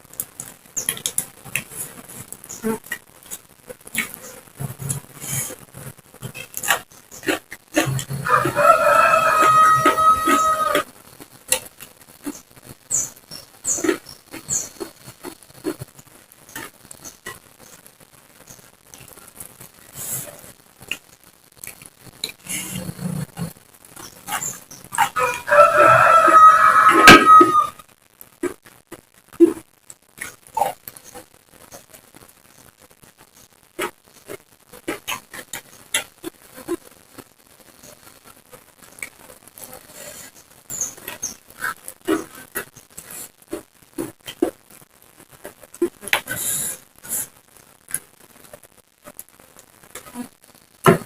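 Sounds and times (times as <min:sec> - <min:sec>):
crunching and chewing food: 0:00.0 - 0:32.4, 0:33.0 - 0:50.2
chewing raw vegetables: 0:06.2 - 0:12.5, 0:13.6 - 0:17.4
rooster crowing: 0:08.1 - 0:10.9, 0:25.0 - 0:27.8.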